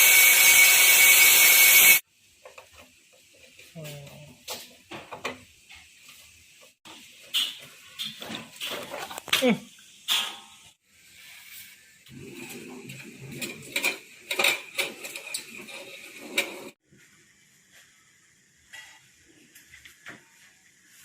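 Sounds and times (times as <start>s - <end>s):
metal parts handled with tools: 12.3s - 16.8s.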